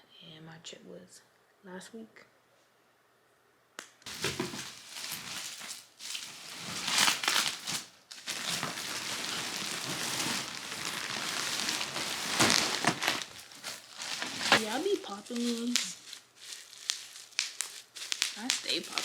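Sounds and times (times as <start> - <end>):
bubble wrap crackling and popping: 4.0 - 19.0.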